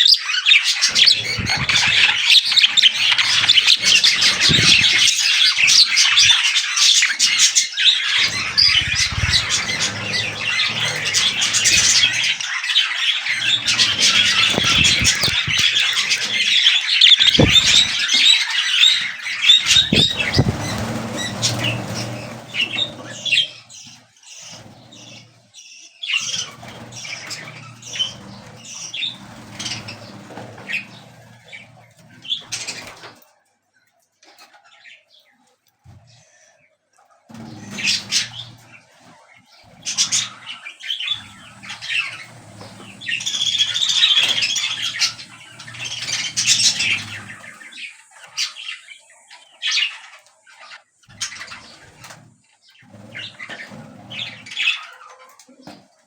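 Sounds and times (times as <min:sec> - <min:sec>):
budgerigars chattering and chirping: 0:00.0 - 0:33.1, 0:37.3 - 0:55.8.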